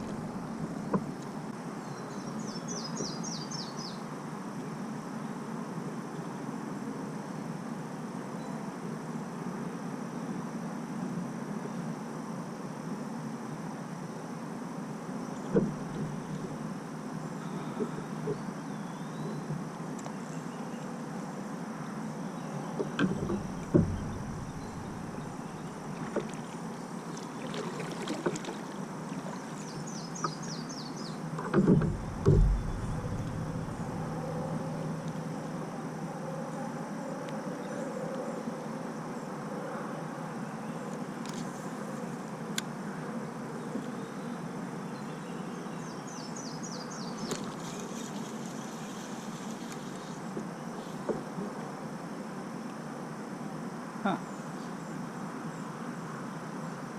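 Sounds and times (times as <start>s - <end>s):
steady background hiss: 0.0s - 56.9s
knocks against kayak: 15.5s - 16.5s, 22.8s - 26.4s, 31.4s - 34.1s.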